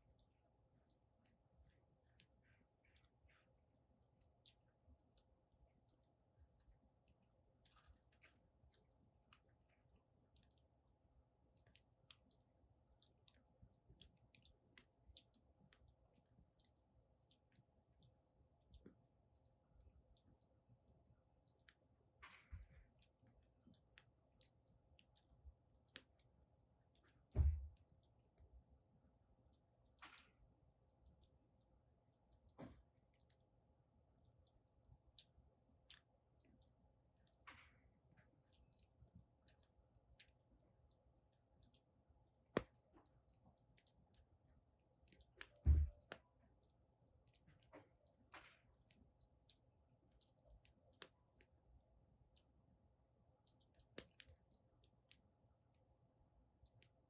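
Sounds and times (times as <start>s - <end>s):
wood fire crackling: 0.0s - 57.0s
low thump: 45.6s - 46.0s.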